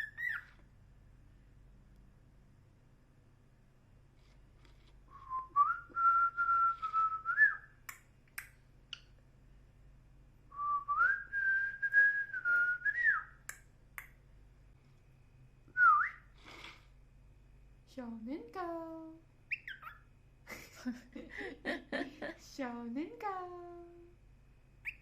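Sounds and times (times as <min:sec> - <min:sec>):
cockatiel whistling: 0:00.0 - 0:00.5, 0:19.5 - 0:20.0
cockatiel chirp: 0:00.0 - 0:00.6, 0:19.5 - 0:20.1.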